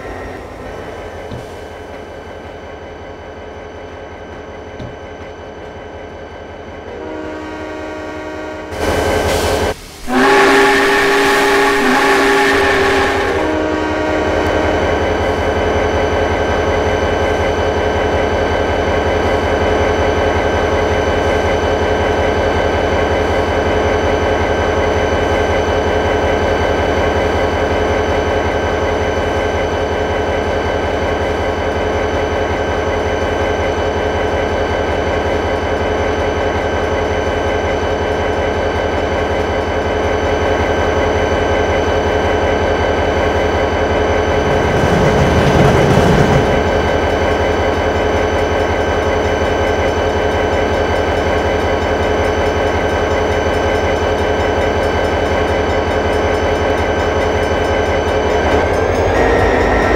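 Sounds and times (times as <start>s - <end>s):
train whistle chord: 0.0s - 1.1s, 6.9s - 15.1s, 58.6s - 59.9s
train running with steady hum: 0.0s - 59.9s.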